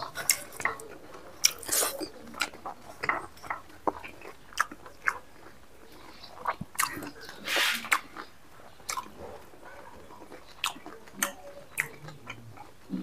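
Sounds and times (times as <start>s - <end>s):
man chewing: 0.0s - 13.0s
wet mouth clicks: 6.5s - 8.3s.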